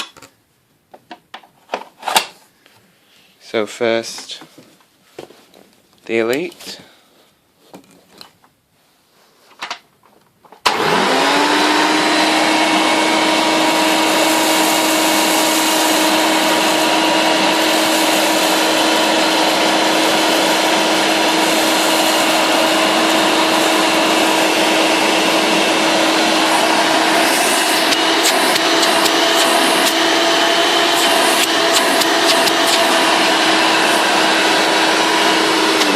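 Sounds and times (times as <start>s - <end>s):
vacuum cleaner running: 10.6s - 35.9s.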